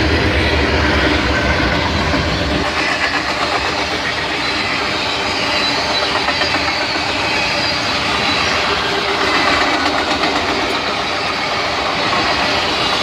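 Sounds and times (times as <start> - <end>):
train wheels rolling on rail: 0.0 - 13.0.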